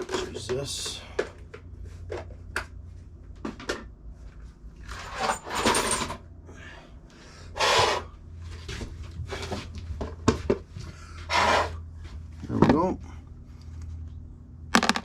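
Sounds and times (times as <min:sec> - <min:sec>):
metal parts scraping and rattling: 0:04.8 - 0:06.2.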